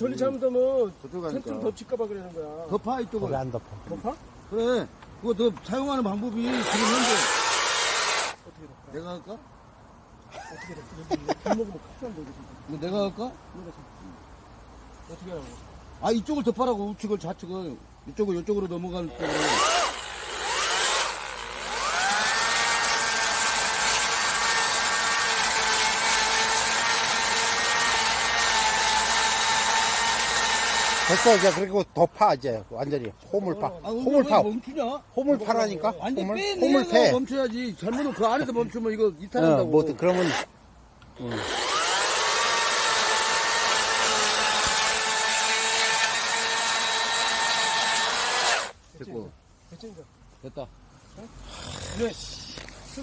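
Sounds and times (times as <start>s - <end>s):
chainsaw cutting wood: 6.4s - 8.4s, 19.2s - 31.7s, 40.0s - 40.5s, 41.2s - 48.8s.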